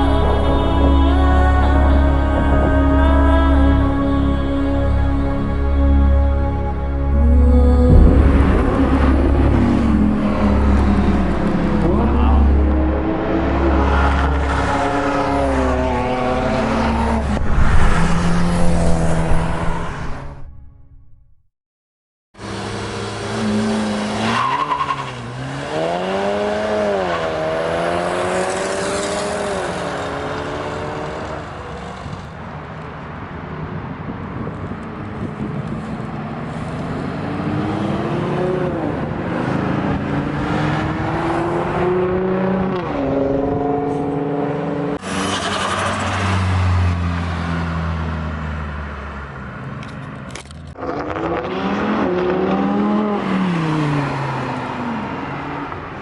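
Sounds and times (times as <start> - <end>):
car engines revving past: 7.1 - 20.4, 22.4 - 32.4, 35.1 - 56.0.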